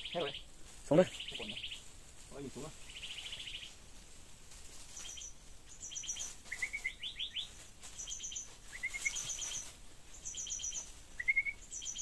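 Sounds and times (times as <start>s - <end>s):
bird song chipping notes: 10.2s - 12.0s.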